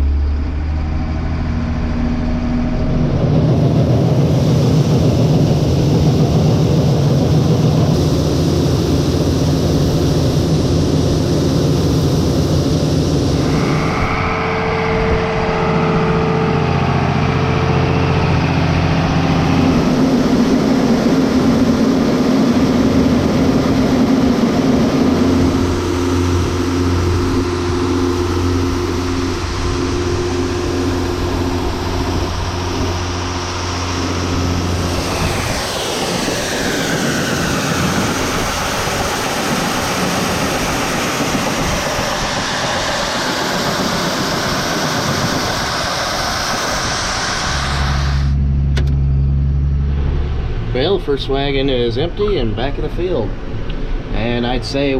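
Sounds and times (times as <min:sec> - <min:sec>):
tractor engine running: 0:00.0 - 0:54.9
grain auger running: 0:07.7 - 0:48.9.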